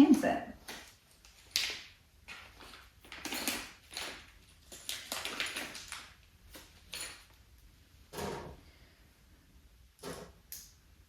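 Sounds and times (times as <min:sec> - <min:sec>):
rustling of parts being handled: 0:00.6 - 0:09.0.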